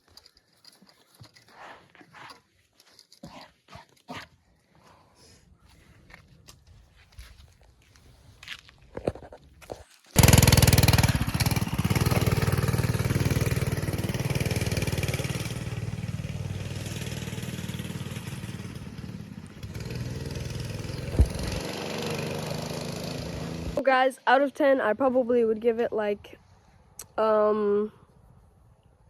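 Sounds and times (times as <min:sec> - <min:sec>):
pit bike engine running: 0:10.2 - 0:23.8.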